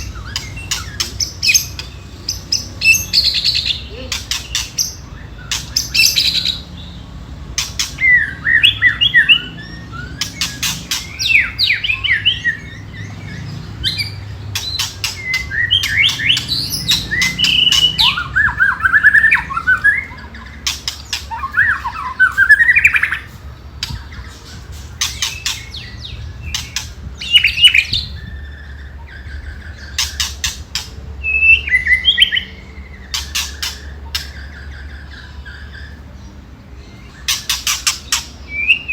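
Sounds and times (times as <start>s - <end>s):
bird warbling song: 0.0s - 38.9s
bird rattling calls: 10.2s - 11.6s, 14.5s - 24.0s, 33.0s - 34.5s, 37.2s - 38.4s.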